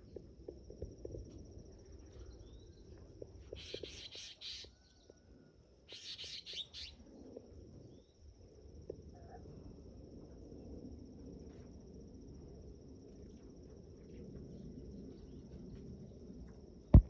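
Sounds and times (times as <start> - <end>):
bird harsh chirps: 3.6 - 4.7, 5.9 - 7.0.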